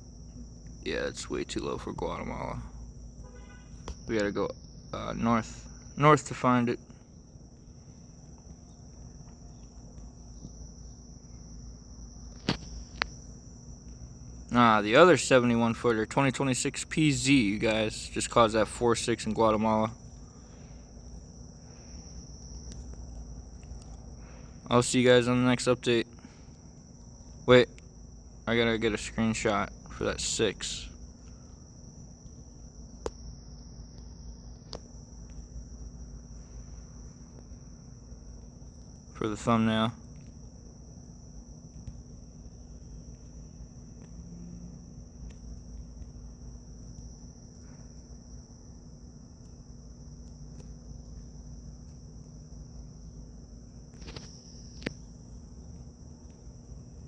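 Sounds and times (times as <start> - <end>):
faint high-pitched tone: 3.2 - 5.4.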